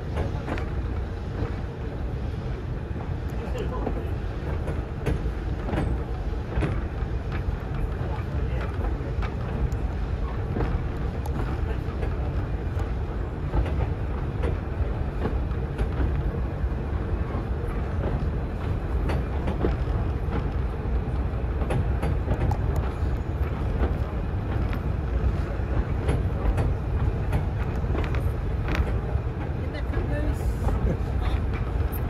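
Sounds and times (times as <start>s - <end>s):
train rumble: 0.0s - 32.0s.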